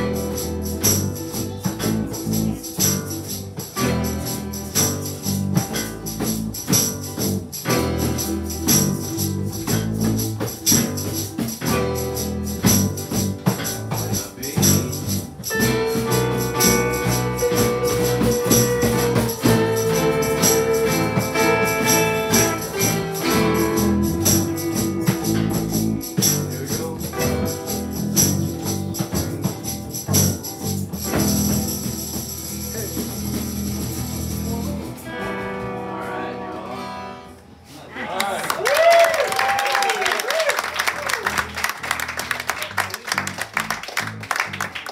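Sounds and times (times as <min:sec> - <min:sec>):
tambourine shaking: 0:00.0 - 0:35.2
bass line: 0:00.0 - 0:37.2, 0:40.8 - 0:44.9
small ensemble playing: 0:00.0 - 0:44.9.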